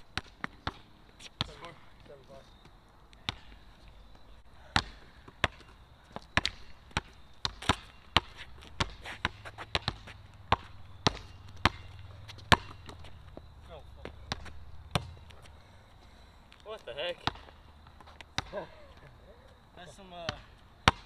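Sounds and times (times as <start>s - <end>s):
basketball bouncing on court: 0.1s - 0.8s, 3.2s - 3.6s, 4.7s - 15.6s, 17.2s - 18.7s, 20.2s - 21.0s
faint low hum: 0.8s - 20.8s.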